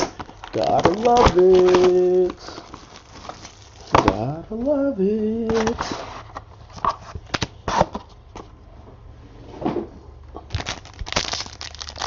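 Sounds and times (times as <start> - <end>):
plastic wrapping crinkling: 0.0 - 4.8, 10.5 - 12.0.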